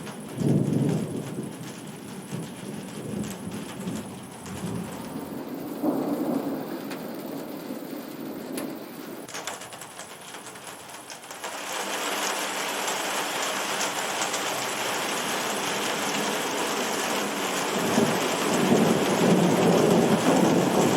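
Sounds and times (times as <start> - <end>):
low rumble of thunder: 0.0 - 10.0, 14.5 - 20.9
heavy rain pouring: 0.0 - 20.9.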